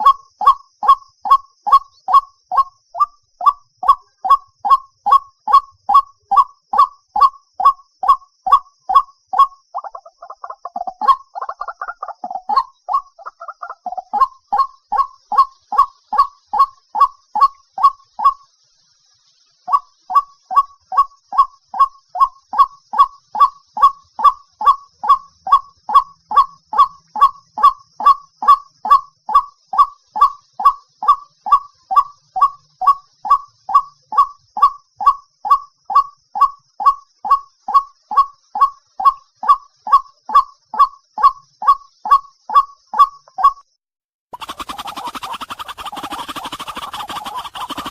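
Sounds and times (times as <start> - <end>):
waterhen harsh kwak calls: 0.0 - 18.4, 44.4 - 47.9.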